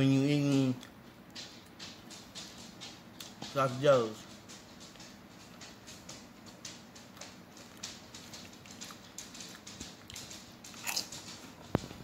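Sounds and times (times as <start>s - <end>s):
chewing potato chips: 4.6s - 12.0s.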